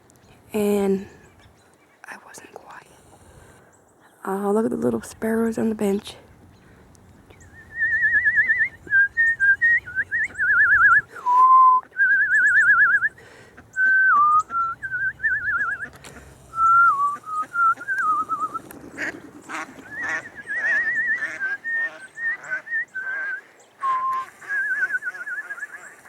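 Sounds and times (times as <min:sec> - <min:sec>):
person whistling: 0:07.6 - 0:13.2, 0:13.8 - 0:15.9, 0:16.5 - 0:18.6, 0:23.8 - 0:25.8.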